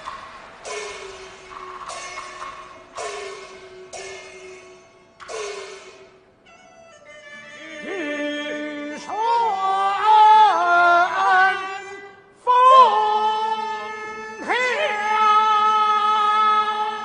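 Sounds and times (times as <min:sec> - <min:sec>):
man singing opera: 0:07.4 - 0:17.0.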